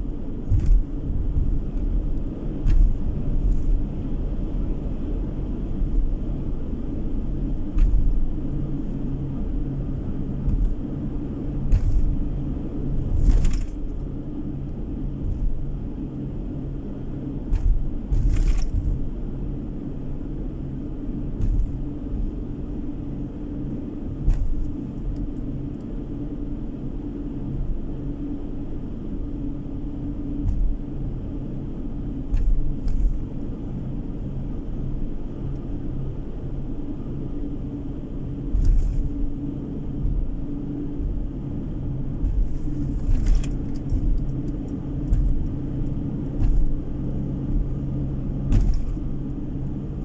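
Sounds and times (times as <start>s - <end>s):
car engine hum and road rumble: 0.0s - 50.0s
short thumps and knocks: 0.4s - 3.9s, 7.7s - 8.6s, 10.4s - 11.0s, 11.7s - 12.4s, 13.1s - 14.0s, 17.5s - 19.1s, 21.4s - 22.4s, 24.2s - 24.9s, 30.4s - 30.8s, 32.3s - 33.3s, 38.5s - 39.4s, 42.2s - 47.7s, 48.5s - 49.4s.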